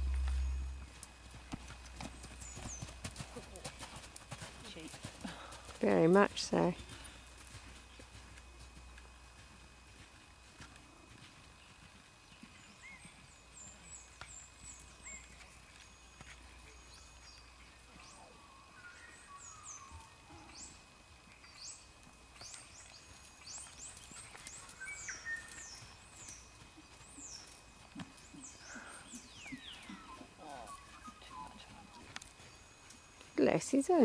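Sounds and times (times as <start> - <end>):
birds chirping and whistling: 0.0 - 0.9, 13.9 - 20.8, 22.4 - 27.6, 28.3 - 31.8.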